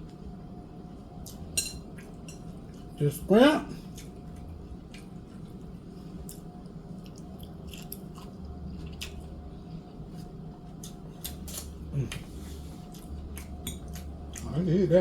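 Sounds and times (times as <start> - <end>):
low background hum: 0.0 - 15.0
chewing crispy food: 3.8 - 15.0.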